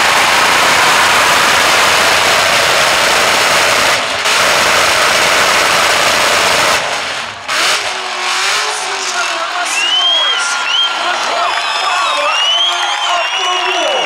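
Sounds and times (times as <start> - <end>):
bare rim grinding on track: 0.0 - 9.4
engine at high revs: 0.0 - 10.4.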